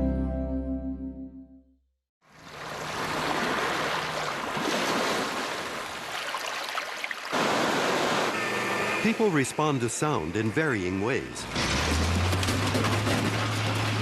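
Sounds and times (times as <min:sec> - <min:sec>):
rushing water: 0:02.2 - 0:10.9.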